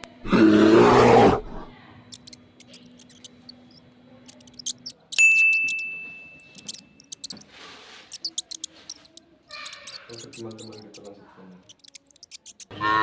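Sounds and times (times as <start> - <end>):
big cat roaring: 0.2 - 1.7
sharp high ding: 5.2 - 6.9.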